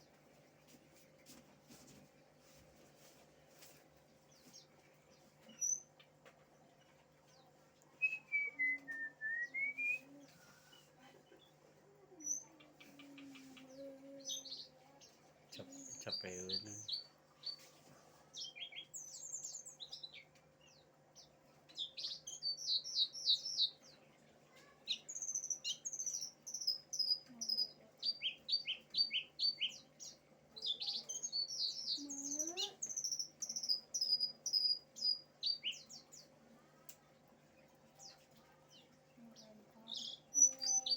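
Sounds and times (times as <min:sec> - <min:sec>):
songbird chirping and trilling: 0:03.6 - 0:40.9.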